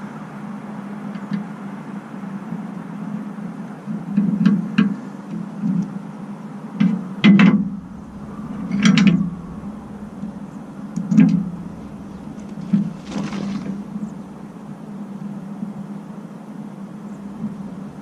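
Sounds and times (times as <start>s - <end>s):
low engine hum: 7.1s - 18.0s.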